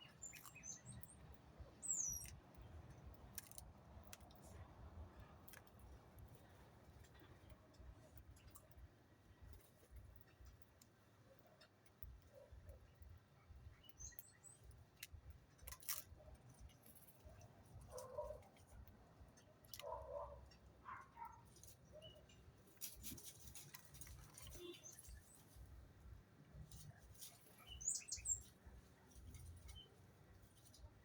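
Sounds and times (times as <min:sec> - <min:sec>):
bird calls and chirps: 0:00.0 - 0:02.4, 0:13.6 - 0:14.7, 0:21.2 - 0:22.4, 0:24.3 - 0:25.5, 0:27.2 - 0:30.0.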